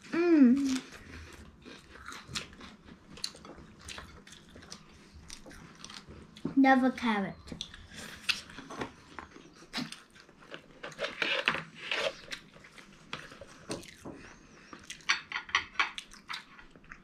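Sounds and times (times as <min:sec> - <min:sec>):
crunchy chewing: 0:00.6 - 0:06.5.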